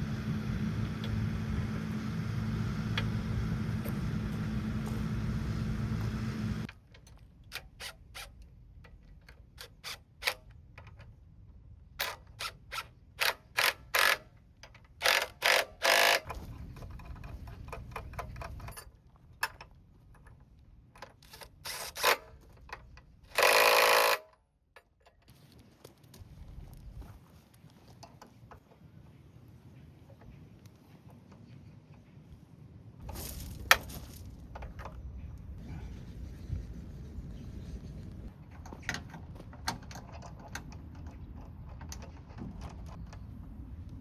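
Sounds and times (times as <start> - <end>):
machine running: 0.0 - 6.7
metallic clicks and clanks: 38.5 - 43.2.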